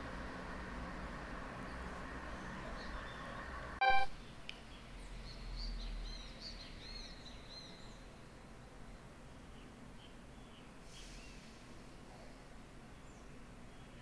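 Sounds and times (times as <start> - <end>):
small birds chirping: 1.6 - 14.0
loud beep-like tone: 3.8 - 4.1.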